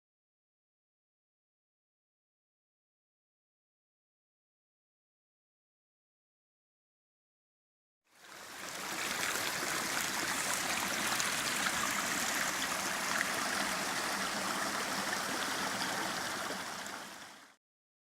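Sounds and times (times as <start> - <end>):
stream water rushing: 8.2 - 17.6.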